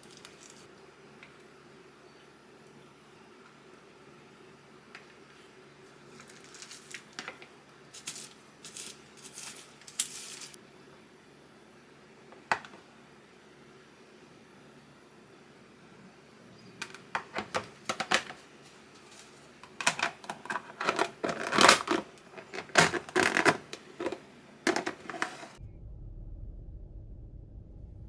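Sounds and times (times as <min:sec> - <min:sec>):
small hard objects clicking: 0:19.0 - 0:25.6
steady low rumble: 0:25.6 - 0:28.0.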